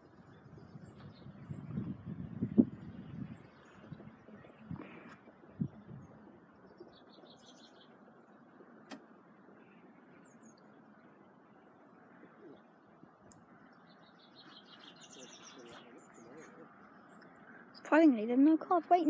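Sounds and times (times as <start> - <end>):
low background noise: 0.0 - 19.0
high bird chirps: 13.6 - 17.6.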